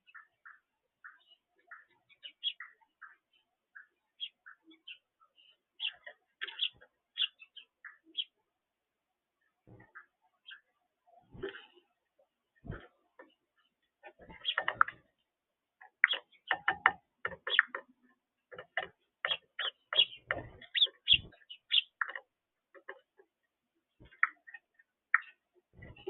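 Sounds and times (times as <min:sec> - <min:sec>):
birds pecking on a feeder: 0:00.0 - 0:08.4, 0:09.6 - 0:26.0.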